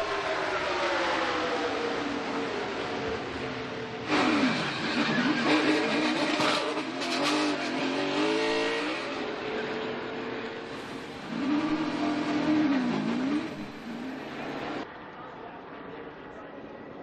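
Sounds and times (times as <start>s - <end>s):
race car engines at speed: 0.0s - 17.0s.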